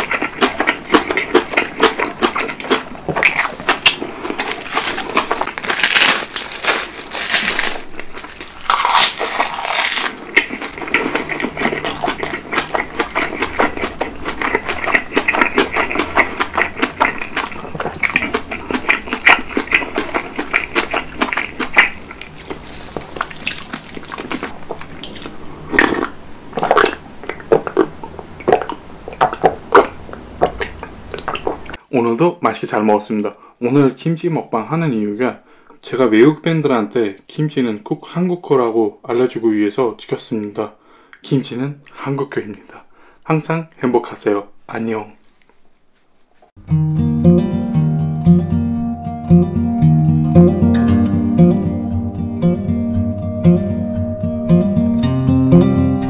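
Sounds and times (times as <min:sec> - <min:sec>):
crunchy chewing: 0:00.0 - 0:31.8.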